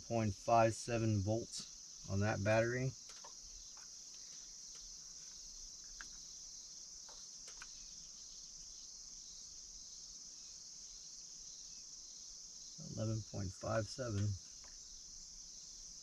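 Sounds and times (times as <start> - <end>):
crickets chirring: 0.0 - 16.0
faint ticks: 3.0 - 6.3.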